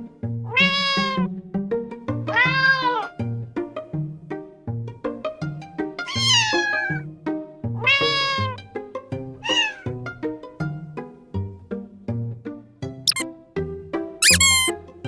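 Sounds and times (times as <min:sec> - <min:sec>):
cat meowing: 0:00.5 - 0:01.3, 0:02.3 - 0:03.1, 0:06.1 - 0:07.0, 0:07.8 - 0:08.6, 0:09.4 - 0:09.9, 0:14.2 - 0:14.7.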